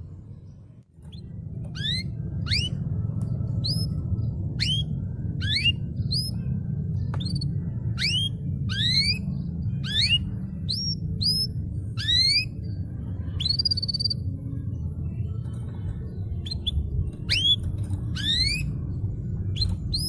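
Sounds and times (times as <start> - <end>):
steady low hum: 0.0 - 20.0
canary whistling: 1.1 - 2.8, 4.5 - 6.4, 7.3 - 12.6, 16.4 - 18.8.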